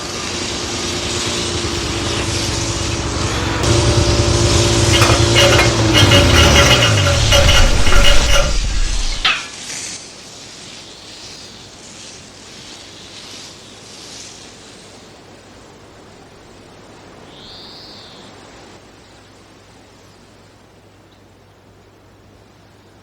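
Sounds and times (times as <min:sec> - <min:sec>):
gusting blizzard wind: 0:00.0 - 0:09.3
loud crash: 0:01.6 - 0:09.6.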